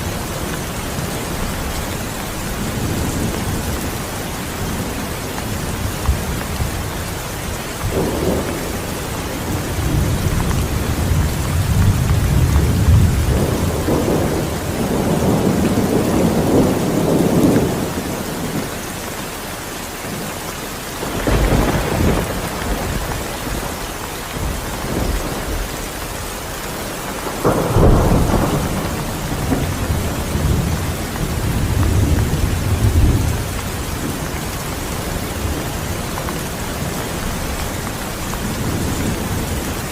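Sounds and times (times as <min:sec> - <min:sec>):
rolling thunder rumble: 0:00.0 - 0:18.8, 0:21.0 - 0:39.9
steady rain: 0:00.0 - 0:39.9
thunderclap: 0:07.8 - 0:18.1, 0:21.0 - 0:39.9.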